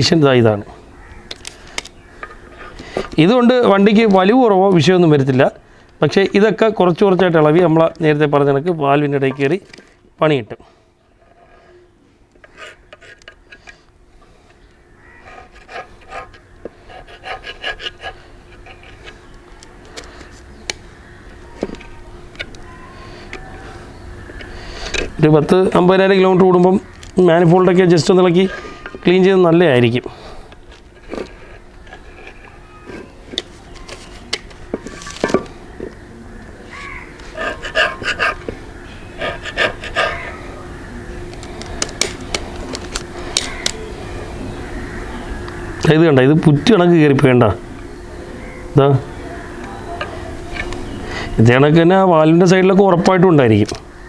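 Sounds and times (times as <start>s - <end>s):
tool scraping sludge: 12.4s - 13.8s.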